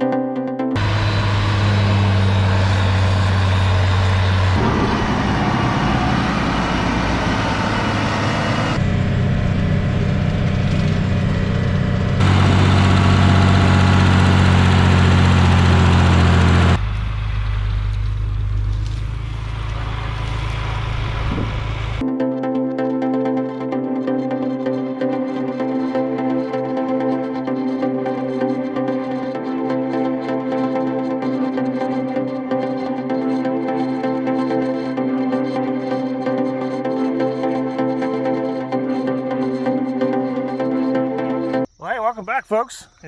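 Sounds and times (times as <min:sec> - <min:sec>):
farm machinery engines running: 0:00.8 - 0:22.0.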